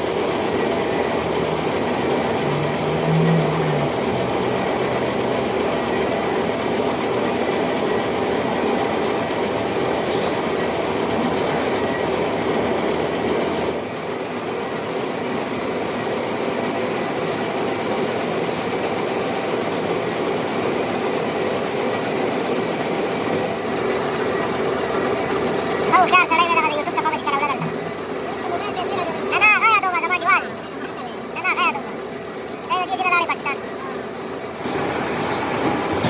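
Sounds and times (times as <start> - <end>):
metal lathe clattering: 0.0 - 13.1, 34.6 - 36.0.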